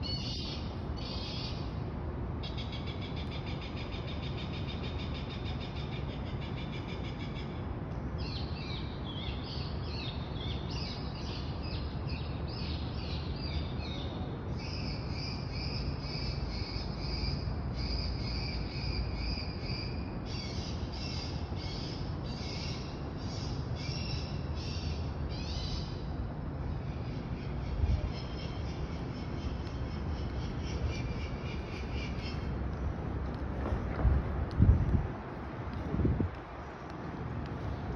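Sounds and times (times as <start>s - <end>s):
low rumble of city noise: 0.0s - 37.9s.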